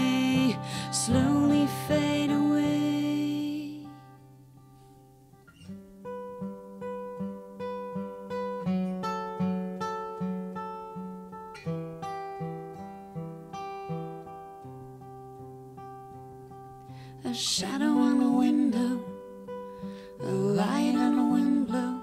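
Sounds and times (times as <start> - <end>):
person singing: 0.0 - 4.1, 17.2 - 22.0
acoustic guitar strummed chords: 0.0 - 22.0.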